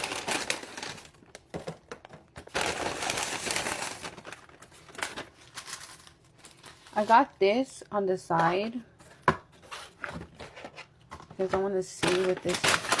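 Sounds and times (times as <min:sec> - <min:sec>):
food packaging crinkling: 0:00.0 - 0:07.4, 0:12.0 - 0:13.0.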